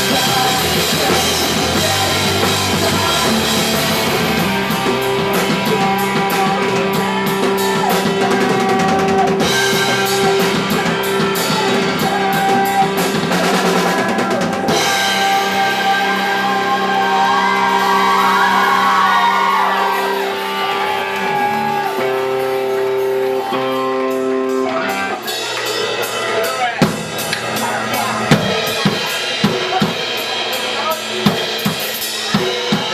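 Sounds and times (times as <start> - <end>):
punk rock band playing live: 0.0 - 32.9.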